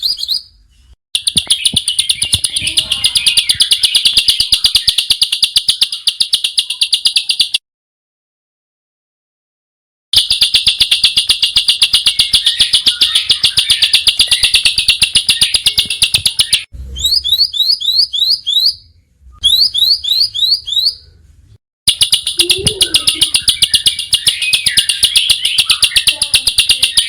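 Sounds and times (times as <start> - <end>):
songbird chattering and whistling: 1.2 - 7.6, 10.2 - 21.1, 21.9 - 27.0.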